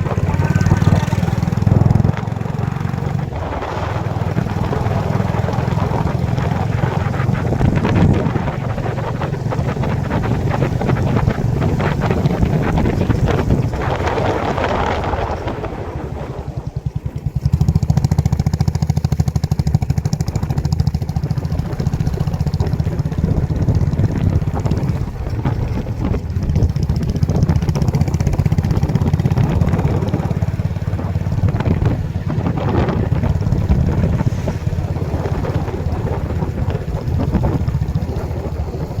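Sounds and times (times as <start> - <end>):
wind buffeting microphone: 0.0 - 39.0
motorcycle engine thrum: 10.4 - 39.0.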